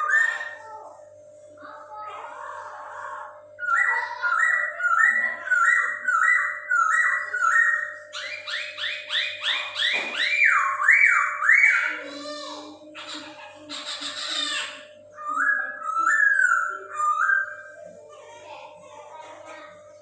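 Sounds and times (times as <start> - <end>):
bird singing whistled phrases: 3.6 - 11.9, 15.2 - 17.8.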